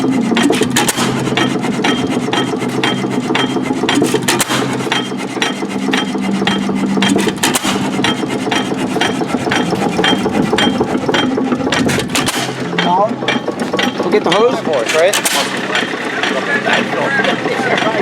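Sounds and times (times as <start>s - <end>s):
stationary engine clattering: 0.0s - 18.0s.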